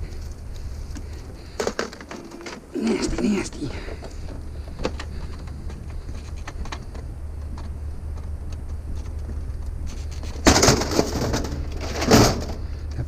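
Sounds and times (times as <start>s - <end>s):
steady low rumble: 0.0s - 13.0s
clicks and rattles of junk handled: 0.9s - 13.0s.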